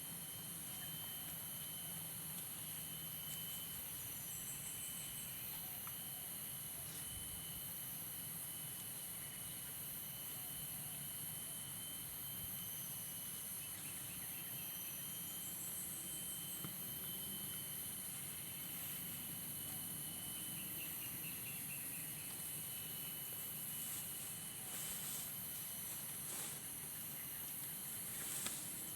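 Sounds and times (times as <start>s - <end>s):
insects calling: 0.0s - 28.9s.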